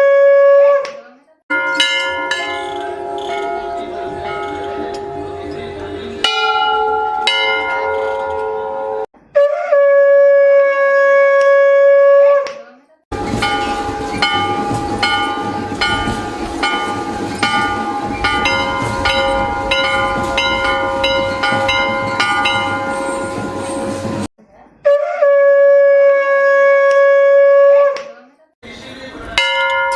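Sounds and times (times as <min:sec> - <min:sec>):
conch shell blown: 0:00.0 - 0:00.8, 0:02.2 - 0:12.4, 0:24.9 - 0:28.0
temple bell ringing: 0:01.5 - 0:09.1, 0:13.1 - 0:24.3, 0:29.4 - 0:29.9.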